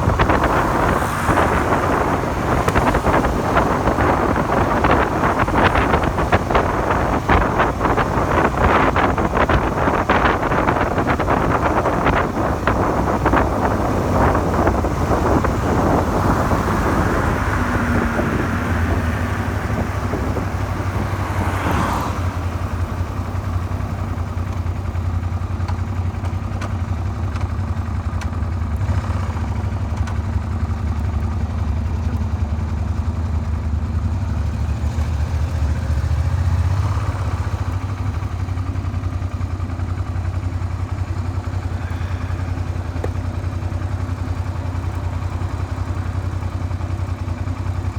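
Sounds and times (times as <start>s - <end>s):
wind rushing over microphone: 0.0s - 24.3s
motorcycle engine running: 0.0s - 47.9s.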